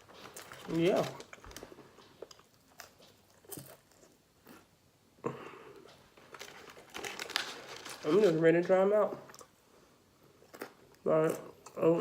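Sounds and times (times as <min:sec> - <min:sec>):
chewing crunches: 0:00.1 - 0:04.7.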